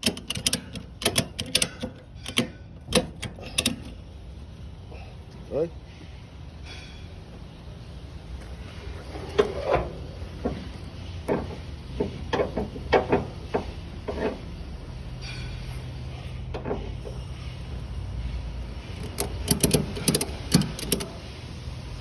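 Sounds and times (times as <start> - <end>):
sharp metallic clicks and knocks: 0.0 - 4.0, 11.2 - 14.6, 18.8 - 21.3
steady low hum: 0.0 - 22.0.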